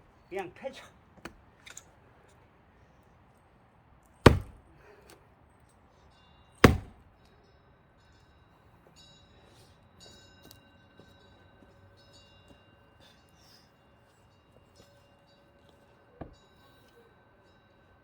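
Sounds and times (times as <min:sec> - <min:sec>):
axe chopping log: 0:04.2 - 0:04.7, 0:06.6 - 0:07.0.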